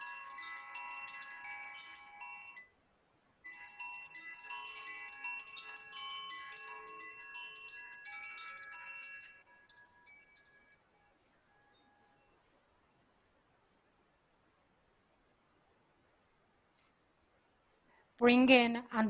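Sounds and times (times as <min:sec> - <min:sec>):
wind chimes tinkling: 0:00.0 - 0:02.8, 0:03.4 - 0:12.6.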